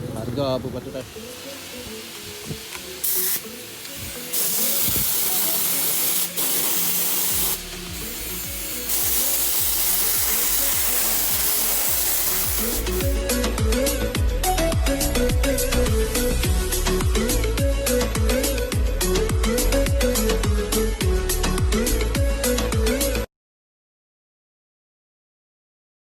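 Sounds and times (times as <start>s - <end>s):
hissing spray bursts: 1.0s - 13.5s
background music with beat: 1.2s - 23.3s.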